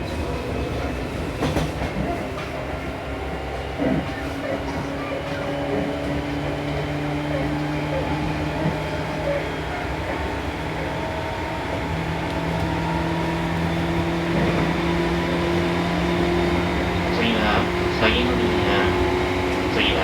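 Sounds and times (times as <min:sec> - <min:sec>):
train rail rumble: 0:12.6 - 0:20.0
train motor hum: 0:14.0 - 0:20.0.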